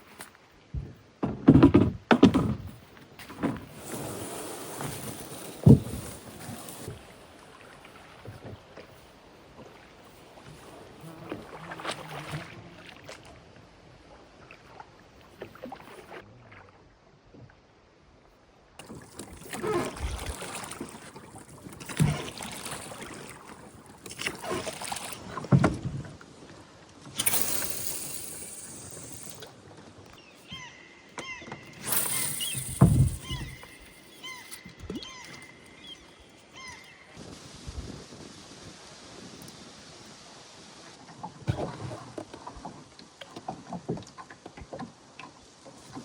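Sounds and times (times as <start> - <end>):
water splashing against boat hull: 0.8 - 13.4, 18.8 - 26.1.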